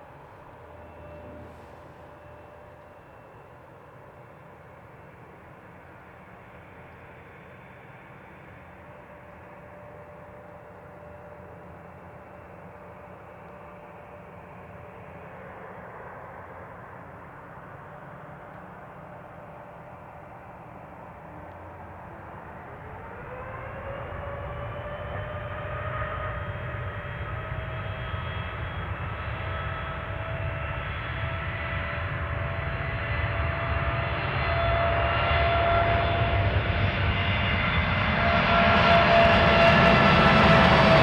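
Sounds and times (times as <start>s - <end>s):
jet engines whining: 0.0s - 4.2s, 21.6s - 41.0s
deep rumble: 0.2s - 3.0s.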